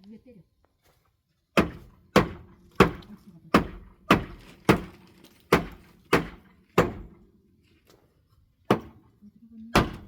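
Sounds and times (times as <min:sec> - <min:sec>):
hammer striking wood: 0:01.6 - 0:07.2, 0:08.7 - 0:09.0, 0:09.8 - 0:10.0.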